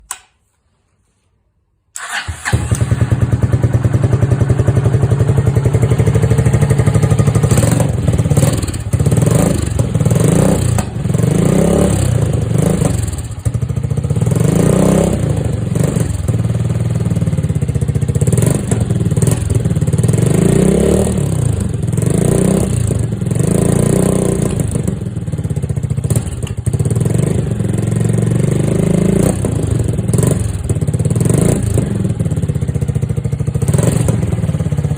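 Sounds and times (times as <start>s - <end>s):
motorcycle engine revving: 2.0s - 34.9s.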